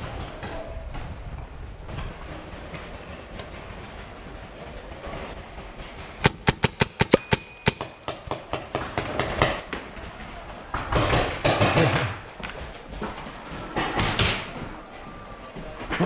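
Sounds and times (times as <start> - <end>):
paintball markers firing: 6.2 - 9.3.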